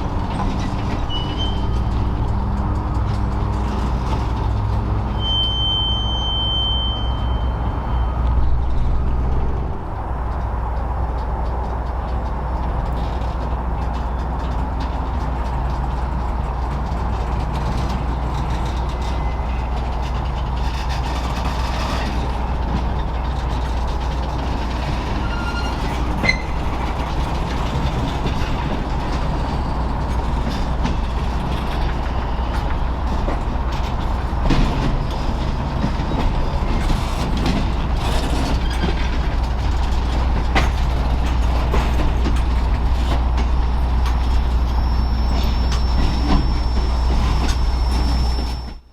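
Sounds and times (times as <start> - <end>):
train rumbling over rails: 0.0 - 48.9
high squeals: 0.9 - 2.1, 5.1 - 10.2, 25.0 - 27.0, 42.4 - 48.9.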